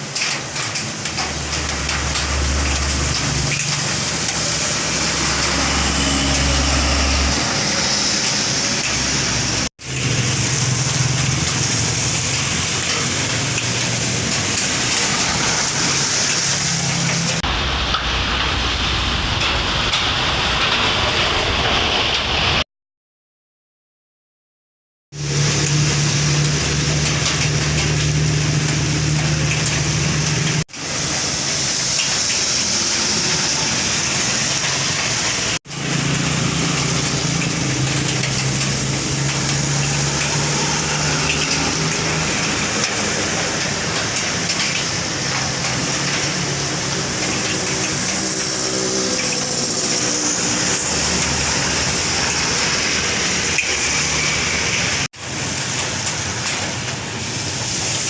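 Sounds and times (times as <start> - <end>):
truck engine droning: 1.2 - 17.4.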